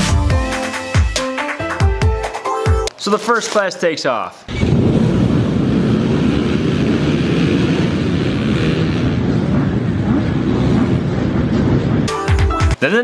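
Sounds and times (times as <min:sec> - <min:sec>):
motorcycles revving: 0:04.5 - 0:12.1.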